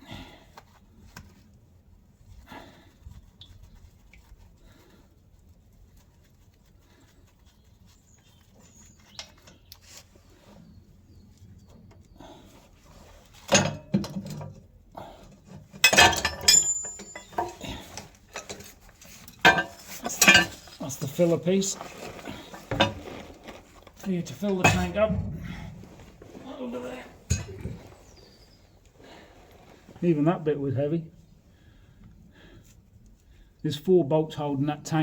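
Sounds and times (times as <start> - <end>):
metal parts and tools clanking: 13.4 - 14.6, 15.3 - 26.0, 27.2 - 27.8.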